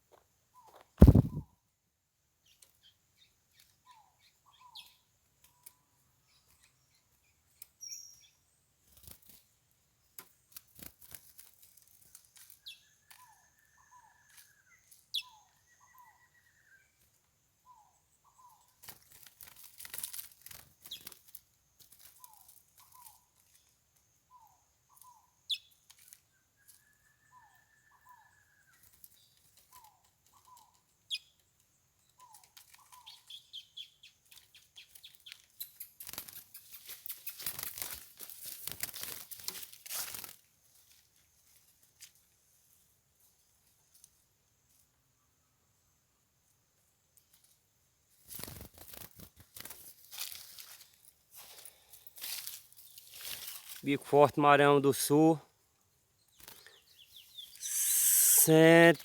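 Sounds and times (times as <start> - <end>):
rustles and wing flutters: 1.0 - 1.4, 8.8 - 9.5, 10.2 - 13.4, 18.7 - 23.7, 34.2 - 44.8, 47.2 - 53.8
faint bird calls: 12.6 - 17.0, 56.3 - 59.0.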